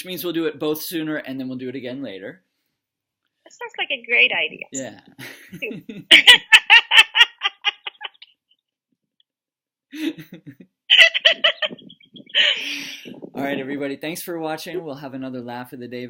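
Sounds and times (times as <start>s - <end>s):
people laughing: 5.2s - 8.2s, 10.0s - 13.1s.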